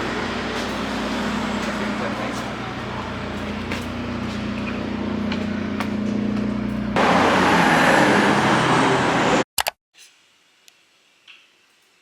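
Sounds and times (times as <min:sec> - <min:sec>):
vehicle engine hum: 0:00.0 - 0:09.4
loud rushing noise: 0:07.0 - 0:09.4.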